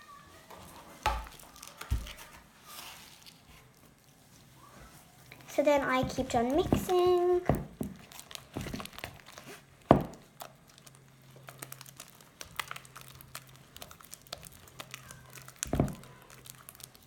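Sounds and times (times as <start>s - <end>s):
slime being stirred in a bowl: 0.4s - 17.0s
louder thumps: 9.9s - 10.2s
small sharp clicks and crackles: 10.3s - 17.0s.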